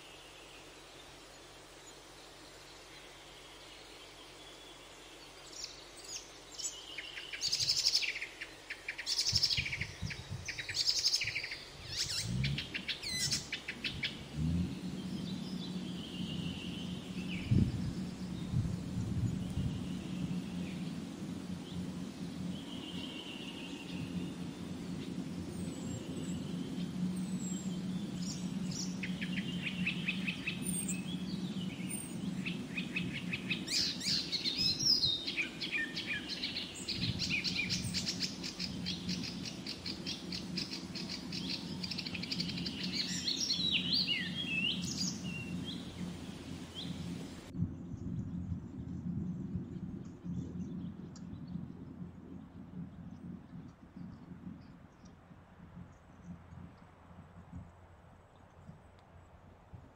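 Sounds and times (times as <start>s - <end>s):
steady low hum: 0.0s - 59.9s
birds trilling: 5.6s - 47.5s.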